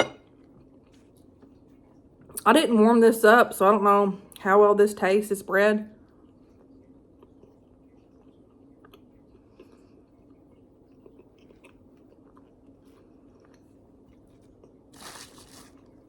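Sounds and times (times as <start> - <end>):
person chewing bread: 0.2 - 2.4, 6.0 - 16.0.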